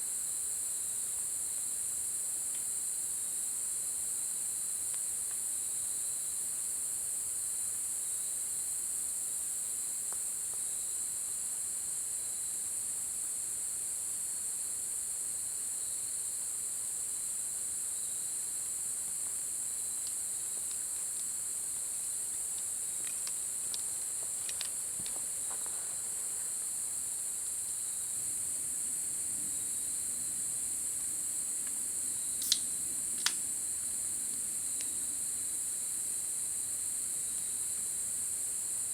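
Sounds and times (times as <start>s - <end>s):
crickets and insects chirping: 0.0s - 38.9s
faint ticks: 2.5s - 2.7s, 20.0s - 25.8s, 32.4s - 33.4s
sharp clicks: 32.4s - 33.4s.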